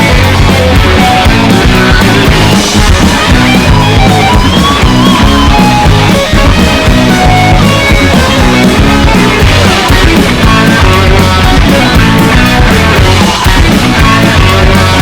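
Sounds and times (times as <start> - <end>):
drum kit playing: 0.0 - 15.0
electric guitar: 0.0 - 15.0
rock song: 0.0 - 15.0.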